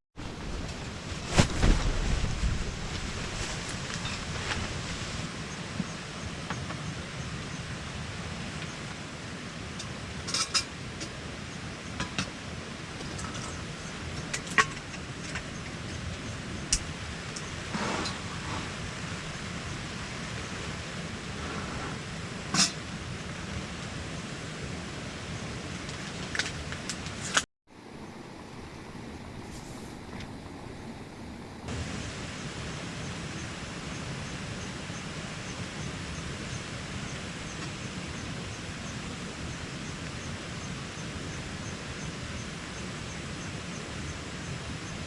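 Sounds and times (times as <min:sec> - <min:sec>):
strong wind: 0:00.2 - 0:08.7, 0:27.7 - 0:45.0.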